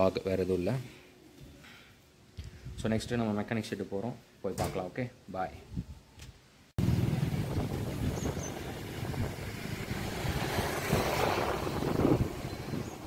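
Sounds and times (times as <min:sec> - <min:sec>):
wind rushing over microphone: 0:02.4 - 0:03.2, 0:05.6 - 0:06.1, 0:06.8 - 0:13.0.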